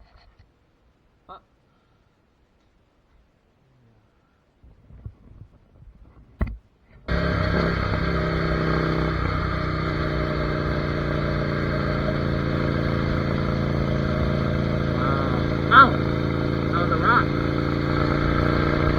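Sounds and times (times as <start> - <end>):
motorcycle engine running: 7.1 - 18.9.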